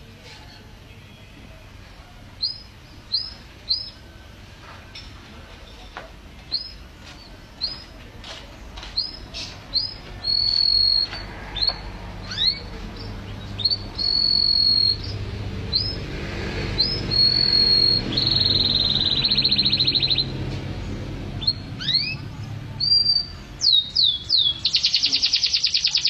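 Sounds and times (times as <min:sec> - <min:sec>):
canary chirps: 0:00.2 - 0:04.3, 0:04.9 - 0:26.0.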